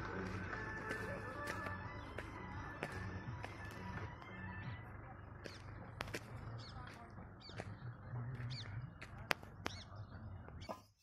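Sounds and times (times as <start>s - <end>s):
steady low rumble: 0.0s - 10.6s
bird chirping: 4.5s - 11.0s.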